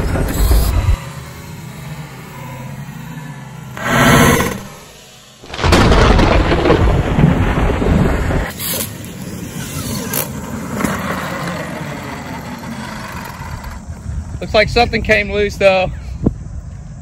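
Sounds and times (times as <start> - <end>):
loud low rumbling: 0.0 - 1.0, 5.5 - 8.5.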